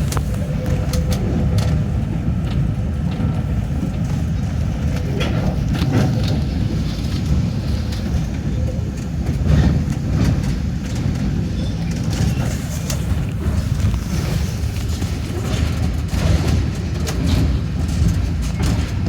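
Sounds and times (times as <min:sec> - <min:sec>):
train running on track: 0:00.0 - 0:19.0
wheels clicking and knocking: 0:00.0 - 0:19.0.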